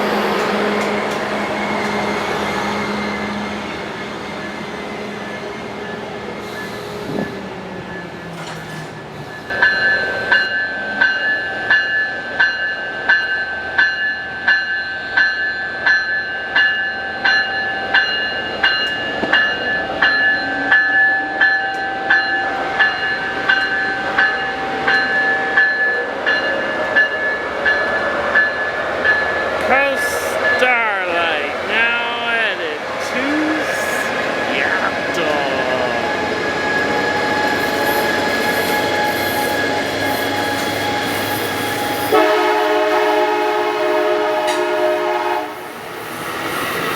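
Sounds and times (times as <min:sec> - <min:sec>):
train rumble: 0:00.0 - 0:11.8, 0:22.8 - 0:46.9
train warning bell ringing: 0:09.0 - 0:41.0.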